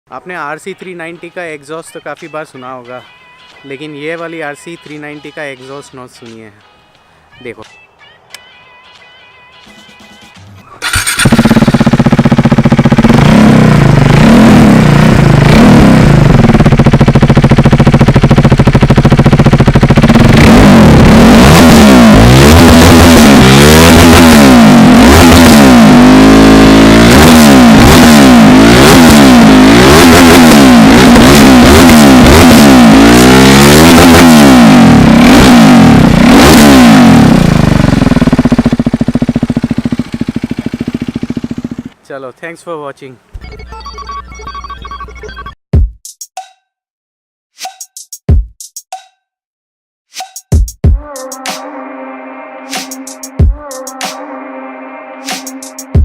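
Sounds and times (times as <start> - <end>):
motorcycle engine revving: 10.8 - 42.0.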